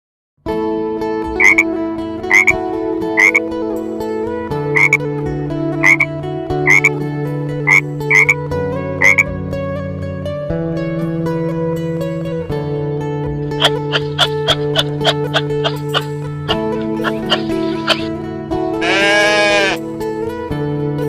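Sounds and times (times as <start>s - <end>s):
background music with sustained chords: 0.5s - 21.0s
short croaks: 1.4s - 1.6s, 2.3s - 2.5s, 3.2s - 3.4s, 4.8s - 5.0s, 5.8s - 6.1s, 6.7s - 6.9s, 7.7s - 8.4s, 9.0s - 9.2s, 13.6s - 18.1s, 18.8s - 19.8s.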